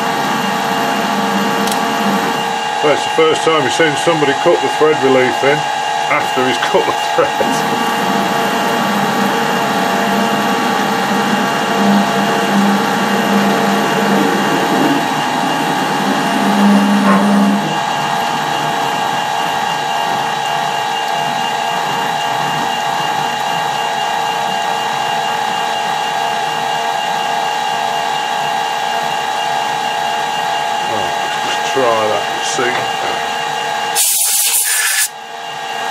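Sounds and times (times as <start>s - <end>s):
low pulsing cutting hum: 0.0s - 26.1s
metal lathe whining: 0.0s - 35.9s.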